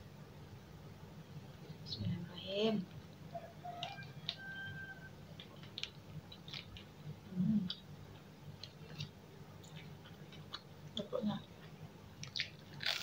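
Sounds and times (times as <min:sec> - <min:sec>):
person chewing food: 0:07.7 - 0:10.8, 0:11.6 - 0:13.0.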